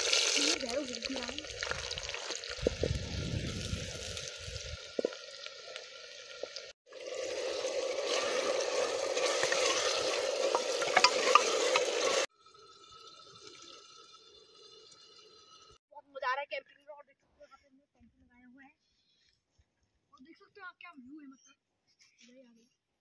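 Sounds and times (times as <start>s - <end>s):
vegetables sizzling in hot oil: 0.0s - 12.3s
wooden spatula scraping pot: 8.1s - 12.3s.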